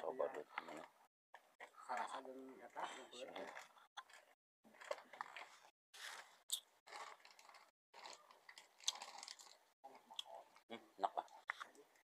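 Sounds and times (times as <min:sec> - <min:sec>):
person chewing crunchy food: 0:06.5 - 0:10.3.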